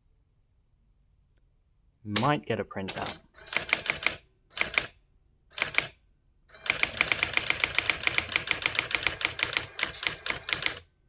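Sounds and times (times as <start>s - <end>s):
electronic typewriter strikes: 2.9s - 4.9s, 6.6s - 10.8s.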